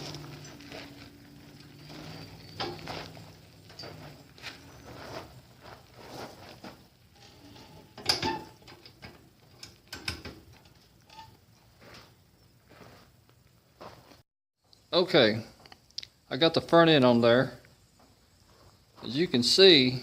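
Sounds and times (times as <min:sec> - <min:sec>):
metal parts clicking and knocking: 0:07.6 - 0:11.4.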